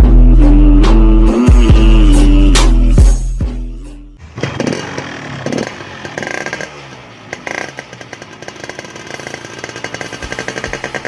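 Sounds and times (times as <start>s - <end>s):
two-stroke engine revving and idling: 4.2s - 11.0s.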